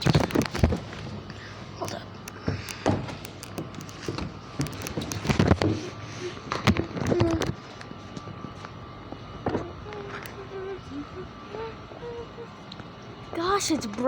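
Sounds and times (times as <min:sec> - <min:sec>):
small ticks: 0:01.8 - 0:05.6.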